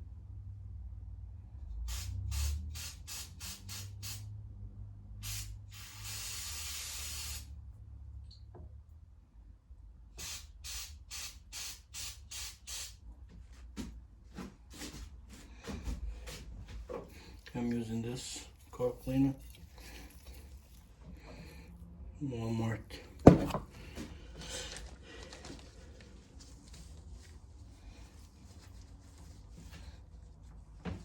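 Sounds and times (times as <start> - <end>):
aerosol spray spurts: 1.9 - 4.3, 5.2 - 7.5, 10.2 - 13.0.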